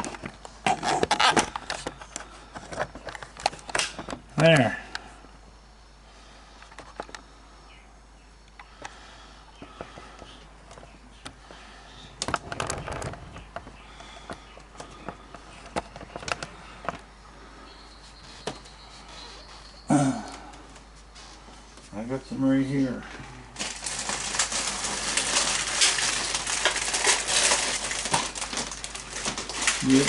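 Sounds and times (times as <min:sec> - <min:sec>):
packaging rustling and clicking: 0:00.0 - 0:04.6, 0:12.2 - 0:17.1, 0:23.6 - 0:30.0.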